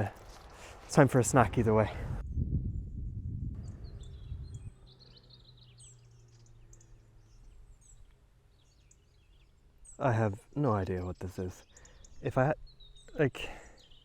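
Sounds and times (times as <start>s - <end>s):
birds chirping: 0.0s - 14.0s
low rumble: 1.7s - 6.1s.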